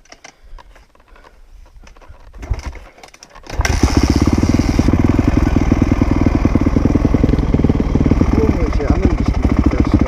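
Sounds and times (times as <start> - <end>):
dirt bike engine running: 3.5 - 10.0.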